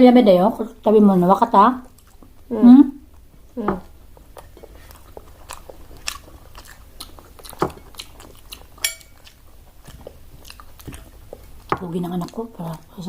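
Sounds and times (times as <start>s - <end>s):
chewing and mouth clicks: 1.8s - 3.3s, 4.1s - 13.0s
dish clinking: 8.8s - 9.2s
dishes tapping: 8.8s - 9.2s.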